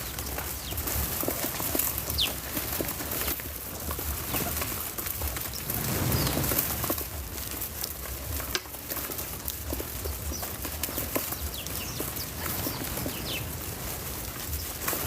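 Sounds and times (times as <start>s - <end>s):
light ticks and pattering: 0.0s - 15.0s
outdoor hiss: 0.0s - 15.0s
rustling: 0.0s - 15.0s
falling bird chirp: 4.2s - 7.0s, 10.1s - 15.0s.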